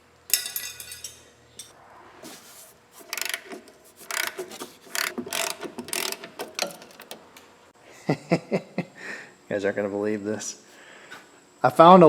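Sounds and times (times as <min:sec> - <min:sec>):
ratchet wrench clicking: 0:03.0 - 0:07.2.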